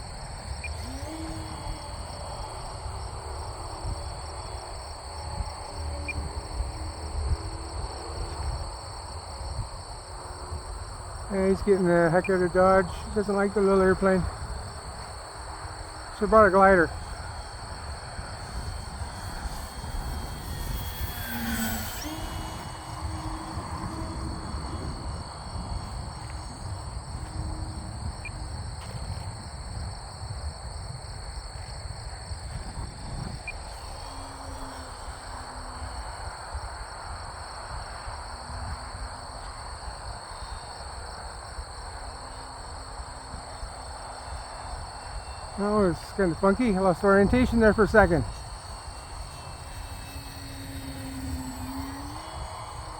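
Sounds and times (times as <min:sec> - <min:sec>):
crickets chirring: 0:00.0 - 0:52.9
wind rumbling on microphone: 0:00.0 - 0:52.9
model plane whistle passing: 0:00.2 - 0:08.7, 0:15.9 - 0:29.2, 0:32.5 - 0:37.3, 0:44.3 - 0:52.9.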